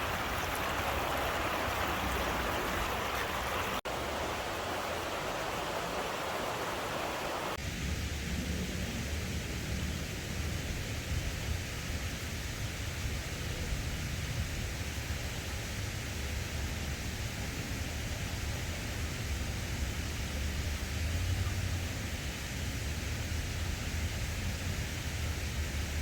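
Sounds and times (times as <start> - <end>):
river water rushing: 0.0 - 7.6
low rumbling hiss: 0.0 - 26.0.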